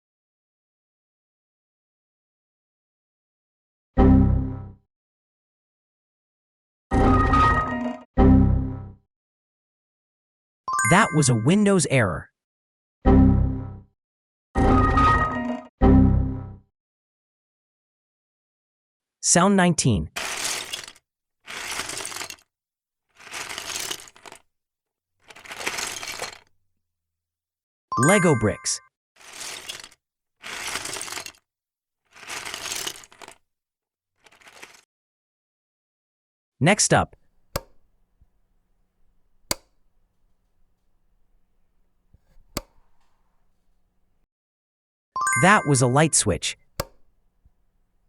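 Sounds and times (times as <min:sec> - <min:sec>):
plastic bricks clattering: 0:20.2 - 0:22.4, 0:23.2 - 0:24.4, 0:25.2 - 0:26.5, 0:29.2 - 0:31.4, 0:32.1 - 0:33.4, 0:37.2 - 0:44.2
light switch clicks: 0:37.3 - 0:43.8.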